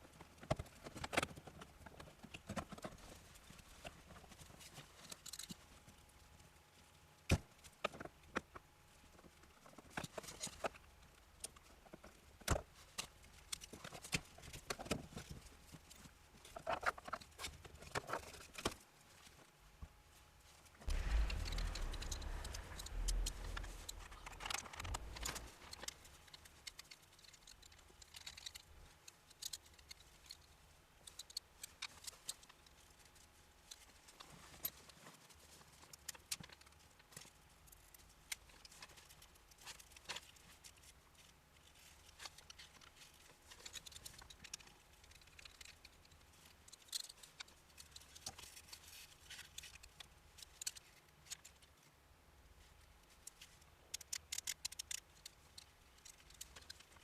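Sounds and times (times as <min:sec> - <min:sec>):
small tools clicking and tapping: 0:23.9 - 0:32.8, 0:42.0 - 0:51.7, 0:53.2 - 0:57.0.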